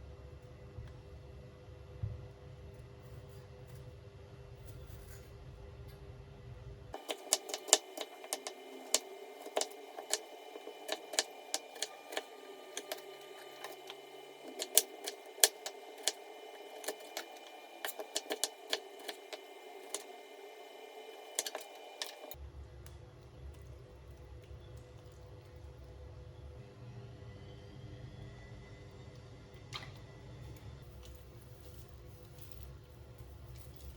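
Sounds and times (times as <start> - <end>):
sharp clicks and taps: 7.0 - 22.4.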